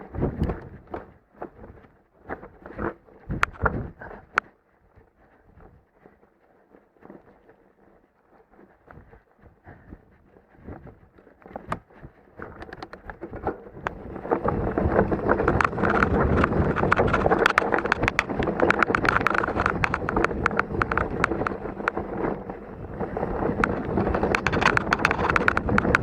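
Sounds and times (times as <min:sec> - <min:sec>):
wind noise: 0:00.0 - 0:07.9, 0:08.5 - 0:26.0
tyre crunch: 0:05.2 - 0:26.0
mountain bike rattling over rocks: 0:11.4 - 0:26.0.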